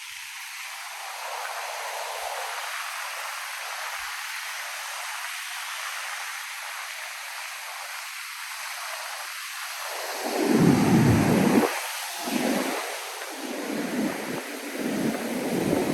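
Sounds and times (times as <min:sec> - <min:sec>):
wind rumble on microphone: 0:09.8 - 0:15.9
ocean surf breaking: 0:09.9 - 0:15.9.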